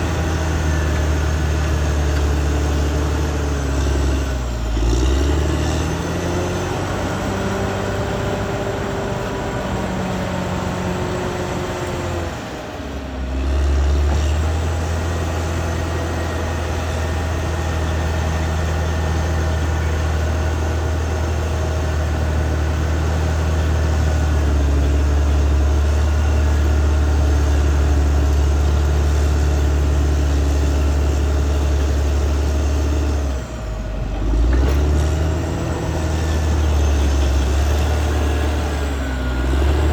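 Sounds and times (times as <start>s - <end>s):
bulldozer diesel engine droning: 0.0s - 39.9s.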